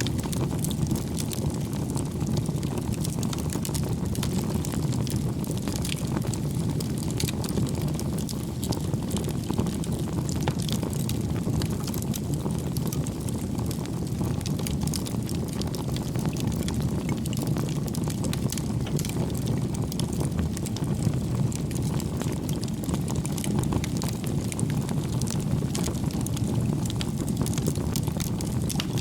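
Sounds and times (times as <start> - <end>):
burning logs crackling: 0.0 - 29.0
wood fire rumbling: 0.0 - 29.0.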